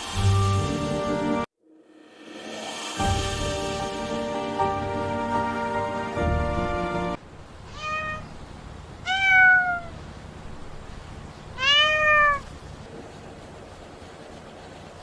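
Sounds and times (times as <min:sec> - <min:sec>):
cat meowing: 0:07.7 - 0:08.4, 0:09.0 - 0:10.0, 0:11.5 - 0:12.6.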